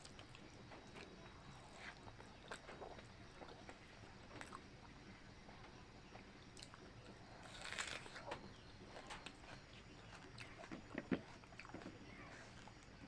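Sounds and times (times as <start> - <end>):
person chewing and biting: 7.4 - 8.2.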